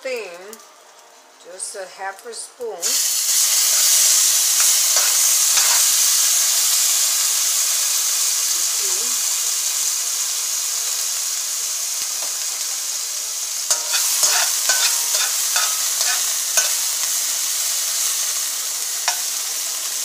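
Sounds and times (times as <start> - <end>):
fat sizzling in a metal pan: 0.0 - 20.0
metal spoon scraping a pan: 2.9 - 6.3, 13.7 - 18.3, 19.0 - 19.4.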